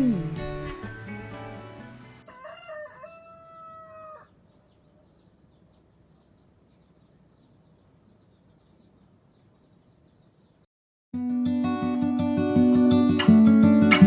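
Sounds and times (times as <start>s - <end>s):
background music: 0.0s - 2.4s, 11.2s - 14.0s
rooster crowing: 2.2s - 4.4s.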